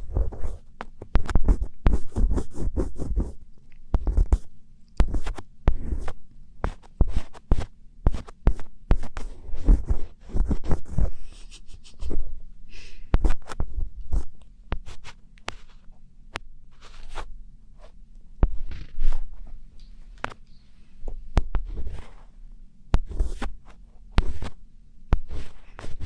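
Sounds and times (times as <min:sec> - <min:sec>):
steady low hum: 0:00.0 - 0:26.0
crisp scratching and crunching: 0:16.7 - 0:17.3.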